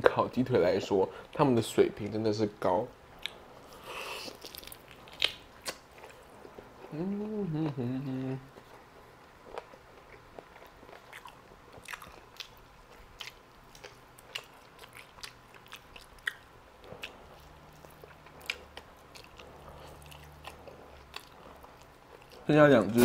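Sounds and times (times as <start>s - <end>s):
chewing chicken with mouth smacks: 9.4s - 22.5s.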